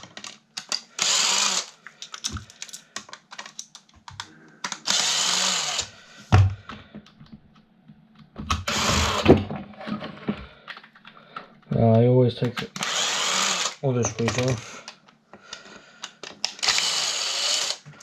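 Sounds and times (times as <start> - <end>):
cordless drill whirring: 1.0 - 1.8, 4.8 - 6.0, 8.6 - 9.3, 12.8 - 14.6, 16.4 - 18.0
handling clicks and knocks: 2.0 - 4.8.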